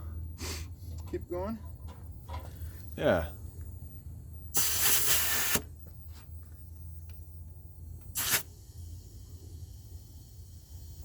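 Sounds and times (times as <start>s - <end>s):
air brake hissing: 0.4s - 0.7s, 4.6s - 5.6s, 8.2s - 11.0s.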